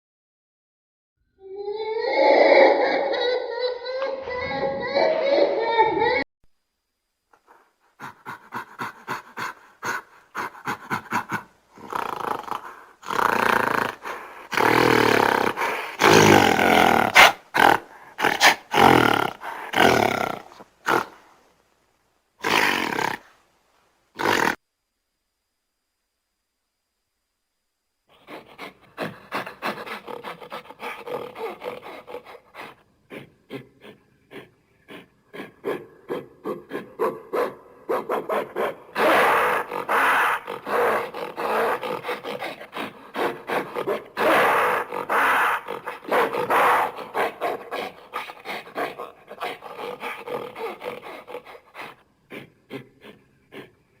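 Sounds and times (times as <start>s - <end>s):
gorilla grunting: 7.4s - 21.3s, 22.4s - 23.3s, 24.2s - 24.6s, 28.1s - 53.9s.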